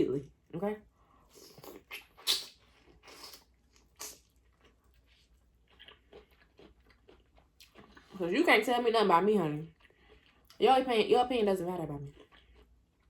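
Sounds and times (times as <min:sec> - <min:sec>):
wet mouth smacks and chewing: 0:01.4 - 0:08.1.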